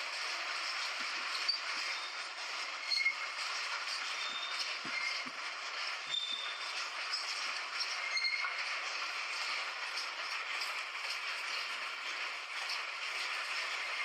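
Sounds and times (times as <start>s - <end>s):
train rushing on rails: 0.0s - 14.0s
faint high squeal: 2.8s - 3.3s, 4.1s - 5.3s, 6.1s - 6.6s, 8.0s - 8.6s.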